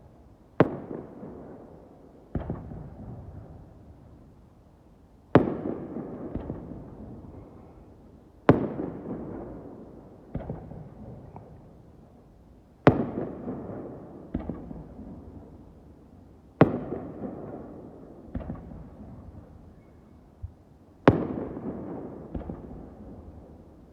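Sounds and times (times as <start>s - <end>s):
fireworks bursting with echo: 21.1s - 23.6s.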